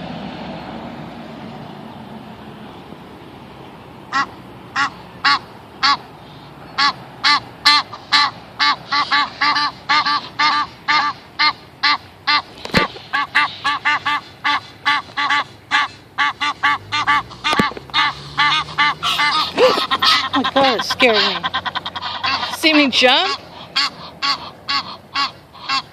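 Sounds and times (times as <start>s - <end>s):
waterfowl honking: 4.1s - 25.9s.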